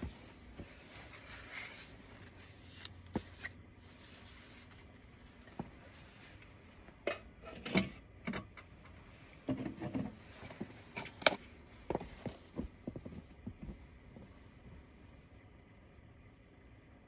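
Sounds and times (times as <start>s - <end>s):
rustle or scrape: 0.0s - 6.7s.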